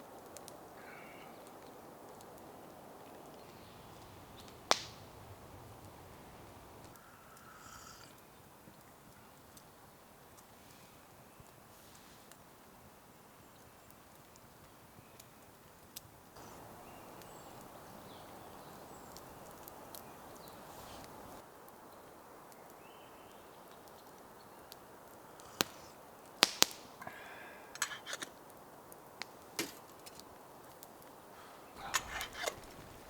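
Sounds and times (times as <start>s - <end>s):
faint outdoor rush: 0.0s - 33.0s.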